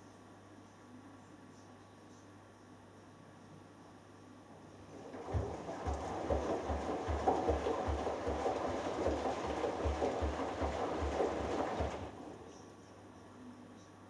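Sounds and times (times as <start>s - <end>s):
water and laundry sloshing: 4.9s - 12.6s
washing machine drum thudding: 5.0s - 12.4s.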